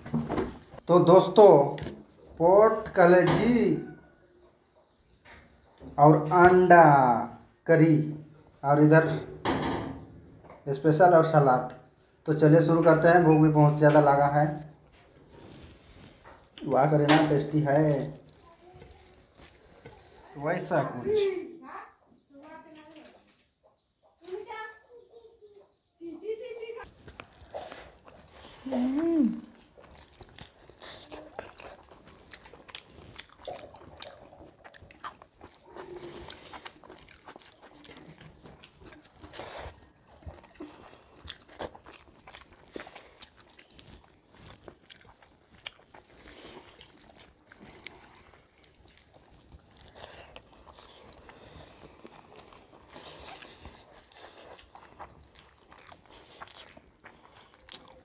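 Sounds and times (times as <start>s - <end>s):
chewing and mouth smacks: 15.2s - 20.3s, 26.8s - 58.0s.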